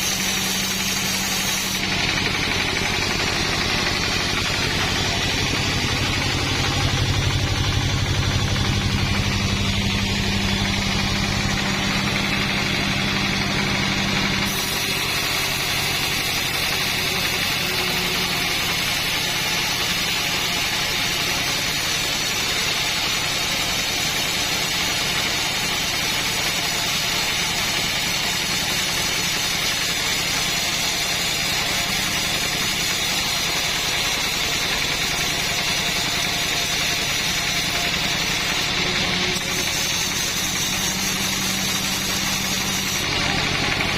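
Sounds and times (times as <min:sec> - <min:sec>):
petrol saw engine running: 0:00.0 - 0:43.9.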